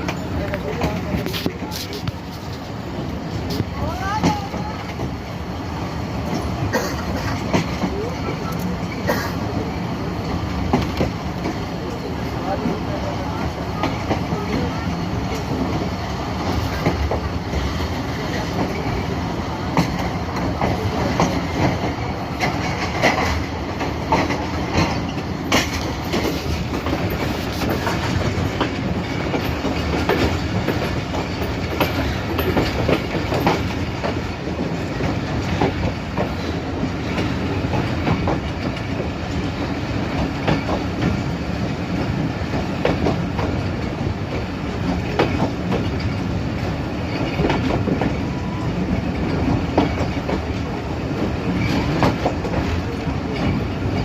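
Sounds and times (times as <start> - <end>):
rumble of train coaches: 0.0 - 54.0
wheels clattering over rail joints: 6.2 - 54.0.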